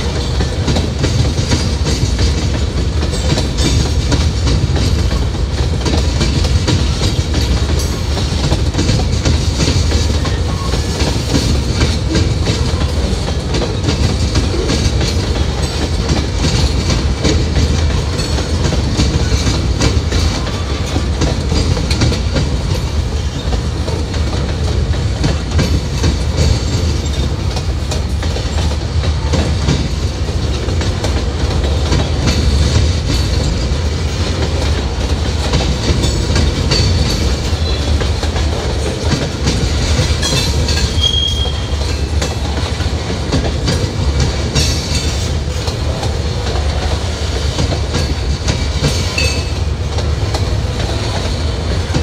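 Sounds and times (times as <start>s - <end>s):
low rumble of train cars: 0.0s - 52.0s
train wheels clicking over rail joints: 0.0s - 52.0s
high wheel squeal: 40.9s - 42.1s.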